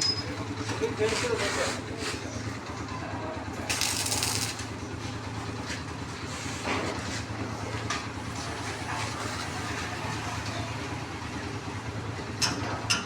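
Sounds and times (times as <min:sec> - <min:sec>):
engine idling: 0:02.2 - 0:06.5.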